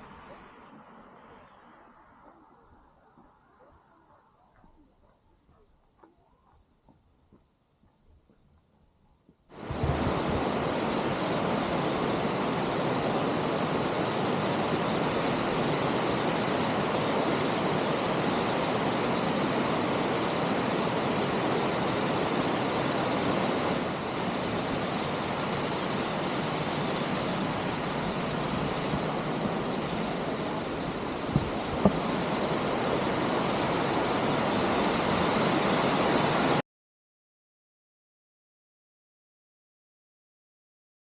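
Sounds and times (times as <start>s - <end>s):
waterfall rushing: 9.6s - 36.6s.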